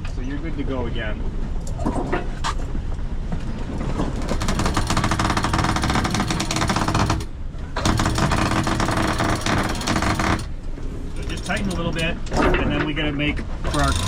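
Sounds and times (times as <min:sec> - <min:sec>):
winch pawls clattering: 0:13.7 - 0:14.0.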